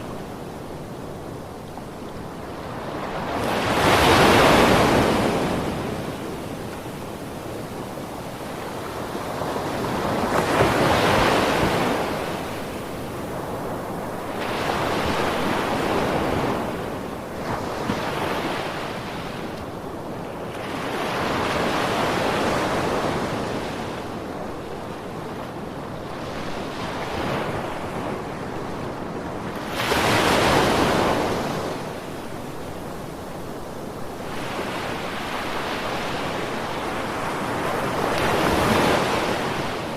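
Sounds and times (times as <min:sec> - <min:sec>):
sea waves breaking on beach: 0:34.0 - 0:39.9.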